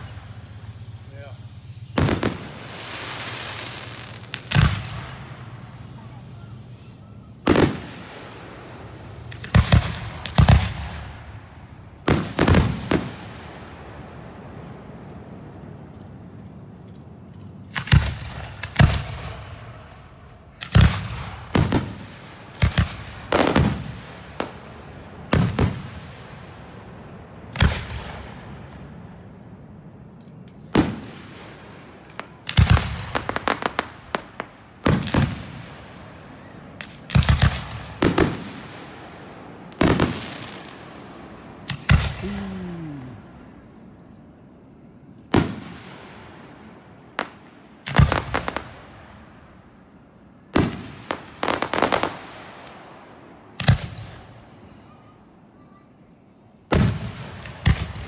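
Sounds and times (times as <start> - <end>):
firework shells bursting: 0.0 - 6.0, 30.2 - 36.2, 39.6 - 43.7
crackling firework pops: 2.0 - 5.6, 9.2 - 11.2, 16.8 - 19.6, 20.5 - 24.7, 27.5 - 28.9, 30.2 - 31.4, 32.0 - 35.9, 36.8 - 38.9, 39.7 - 40.8, 41.6 - 42.5, 47.2 - 49.1, 50.5 - 52.8, 53.5 - 54.4, 56.7 - 58.0.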